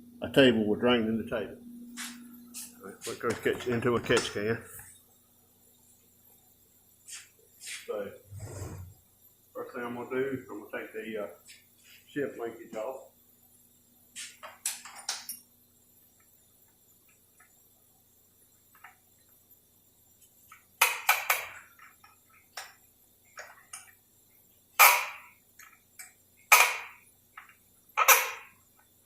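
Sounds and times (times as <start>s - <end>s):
faint small ticks: 16.0s - 17.8s.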